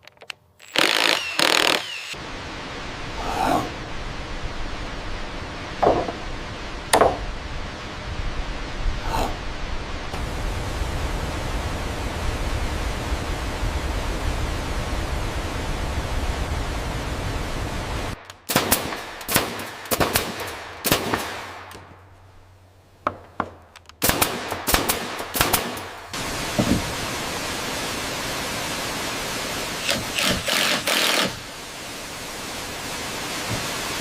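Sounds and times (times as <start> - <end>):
rushing falling water: 2.1 - 19.9, 24.4 - 34.0
sharp knocks: 5.8 - 6.2, 6.9 - 7.2.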